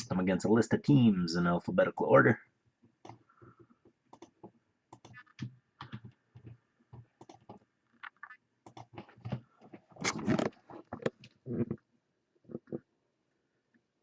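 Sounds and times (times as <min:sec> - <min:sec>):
keyboard and mouse clicking: 0:04.1 - 0:06.6, 0:07.2 - 0:09.4.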